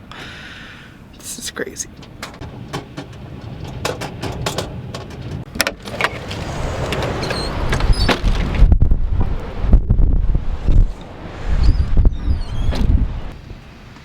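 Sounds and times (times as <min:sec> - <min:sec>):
strong wind gusts buffeting: 0:00.9 - 0:13.7
things rattling with clicks: 0:01.8 - 0:08.6.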